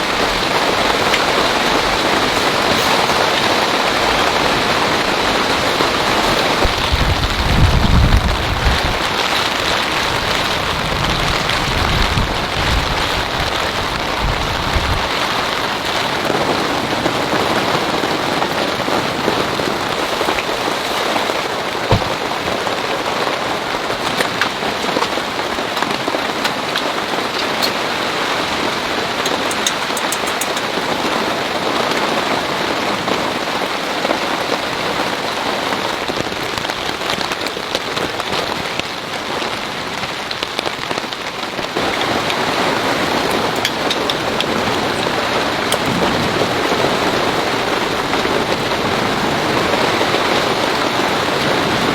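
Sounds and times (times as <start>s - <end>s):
heavy rain falling: 0.0s - 51.9s
drip-like clicks: 29.2s - 30.8s.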